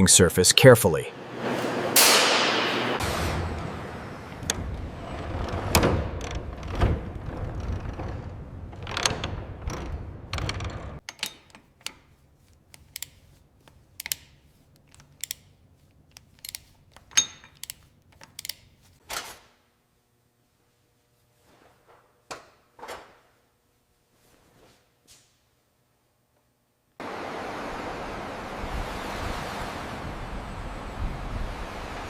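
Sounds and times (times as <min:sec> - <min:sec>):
sharp metal clicks: 0:11.0 - 0:19.0
tool scraping metal: 0:11.0 - 0:19.0.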